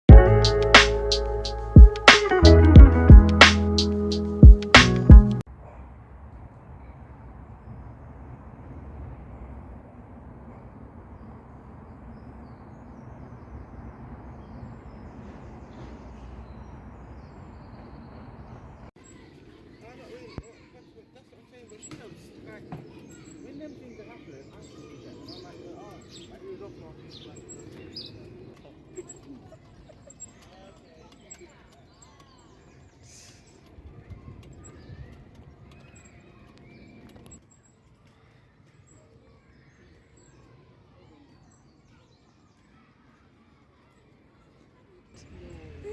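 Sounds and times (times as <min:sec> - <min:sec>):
small birds chirping: 0:10.3 - 0:45.9.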